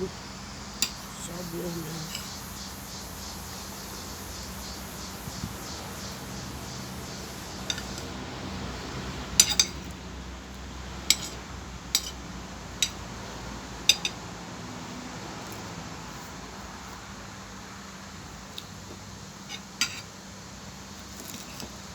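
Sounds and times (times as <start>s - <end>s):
steady background hiss: 0.0s - 21.9s
cutlery clinking against a plate: 0.8s - 1.0s, 7.7s - 8.1s, 9.4s - 9.9s, 11.1s - 12.2s, 12.8s - 13.0s, 13.9s - 14.2s, 19.5s - 20.1s.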